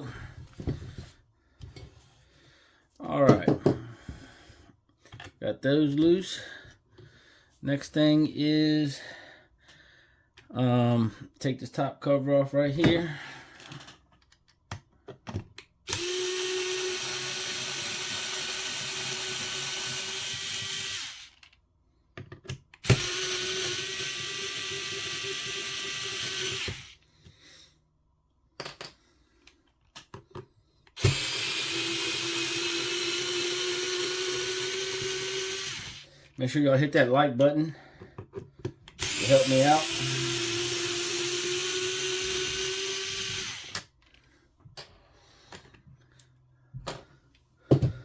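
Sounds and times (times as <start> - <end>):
electric screwdriver running: 15.9 - 21.4, 22.8 - 27.0, 31.0 - 36.0, 39.0 - 43.9
clicks of parts being handled: 28.6 - 30.5.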